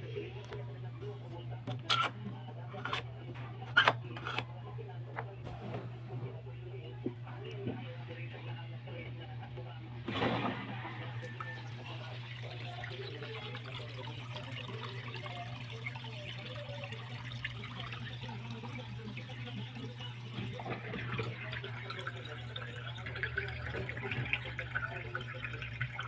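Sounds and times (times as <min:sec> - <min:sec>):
water running and splashing: 0:10.1 - 0:26.0
water dripping: 0:11.1 - 0:26.0.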